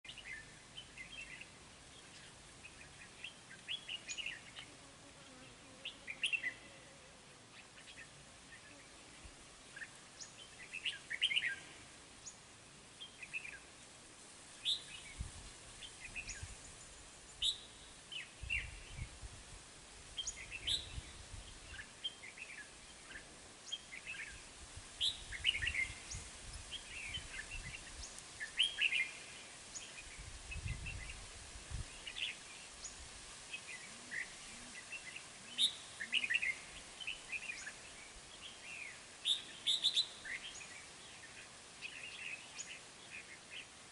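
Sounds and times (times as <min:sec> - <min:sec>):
birds chirping: 0:00.0 - 0:13.9, 0:31.9 - 0:43.8.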